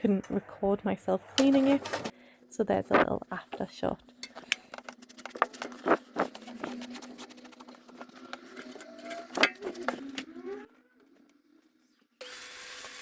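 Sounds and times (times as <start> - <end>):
objects being handled: 2.9 - 12.0.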